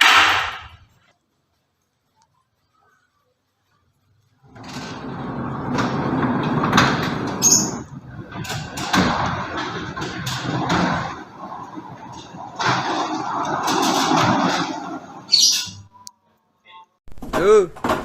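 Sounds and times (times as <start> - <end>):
sharp knocks and bangs: 0.0 - 0.9
garage door rolling on track: 4.4 - 15.9.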